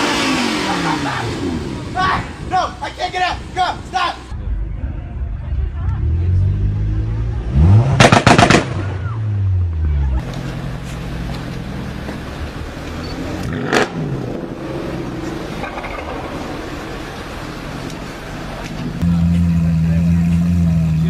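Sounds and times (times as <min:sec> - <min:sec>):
car engine revving: 0:00.0 - 0:02.1, 0:05.7 - 0:17.7, 0:18.9 - 0:21.0
exhaust bangs: 0:05.6 - 0:10.6.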